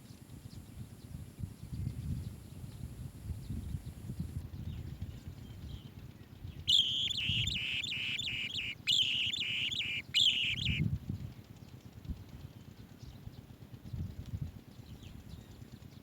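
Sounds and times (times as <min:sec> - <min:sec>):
bird chirping: 0:06.7 - 0:10.8.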